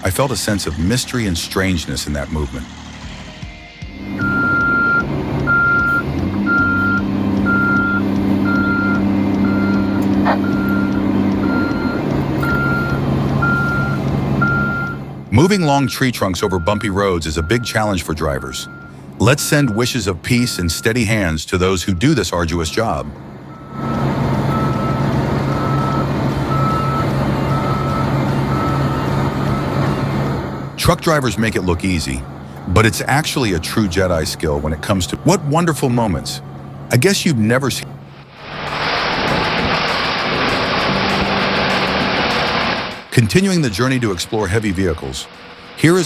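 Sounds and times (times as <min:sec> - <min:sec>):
vehicle engine running: 0:00.0 - 0:20.8, 0:23.0 - 0:46.0
reversing alarm beeping: 0:04.0 - 0:21.2, 0:21.8 - 0:22.3, 0:23.5 - 0:30.1.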